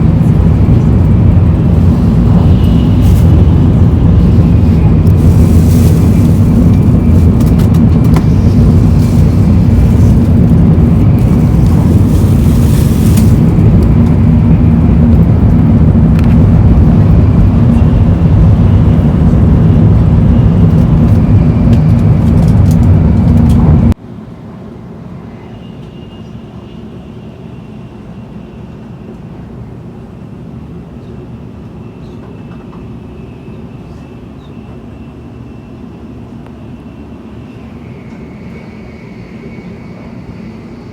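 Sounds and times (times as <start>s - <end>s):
quieter running noise: 0.0s - 24.0s
train running at speed: 0.0s - 40.9s.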